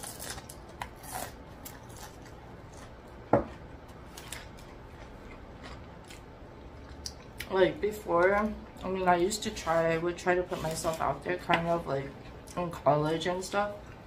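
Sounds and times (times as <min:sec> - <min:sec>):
chewing crunchy food: 0:00.0 - 0:03.0, 0:04.1 - 0:07.5.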